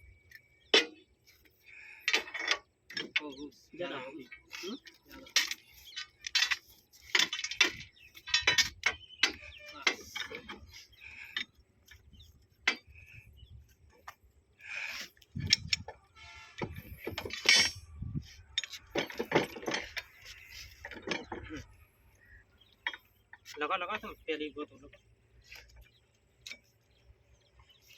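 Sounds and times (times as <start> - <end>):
metal tools clinking and knocking: 0.3 - 3.4, 4.2 - 13.1, 15.3 - 21.6, 22.8 - 23.6.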